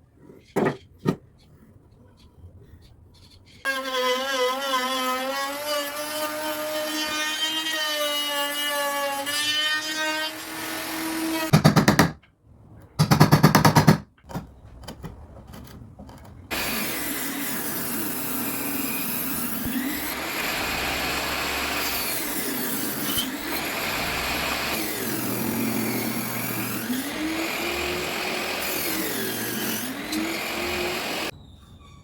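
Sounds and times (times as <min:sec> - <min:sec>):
power tool motor whine: 0:16.5 - 0:31.3
rapid tool strokes: 0:16.5 - 0:31.3
steady tool whirring: 0:16.5 - 0:31.3.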